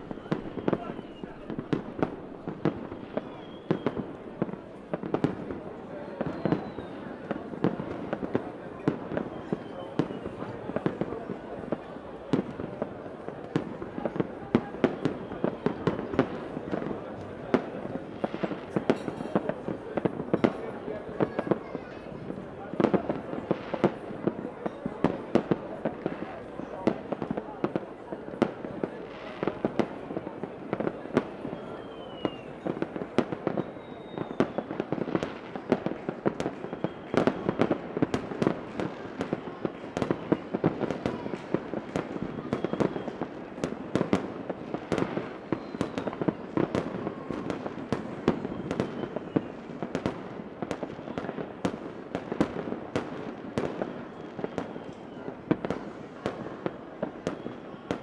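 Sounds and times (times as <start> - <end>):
fireworks bangs and pops: 0.0 - 58.0
faint falling whistle: 3.2 - 4.1, 6.2 - 7.1, 31.5 - 32.6, 33.6 - 34.6.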